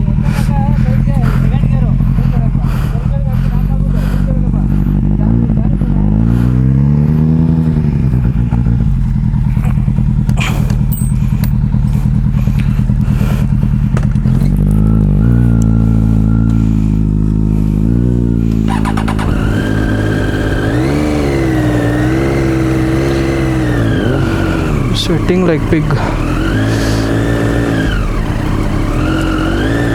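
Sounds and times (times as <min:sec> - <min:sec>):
motorcycle engine revving: 0:00.0 - 0:29.9
higher-pitched engine note: 0:18.6 - 0:29.9.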